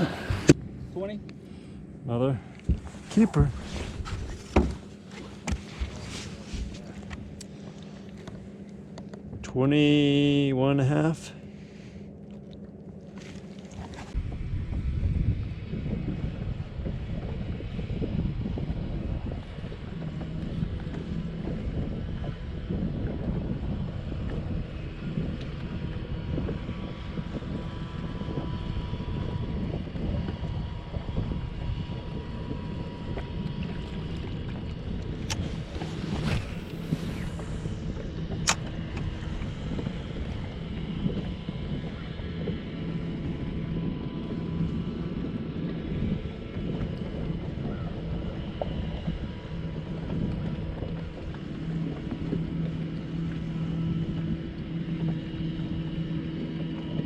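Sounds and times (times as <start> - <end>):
boat motor running: 0.0 - 57.0
wind noise on microphone: 2.6 - 7.5, 13.8 - 57.0
sharp click: 38.4 - 38.7.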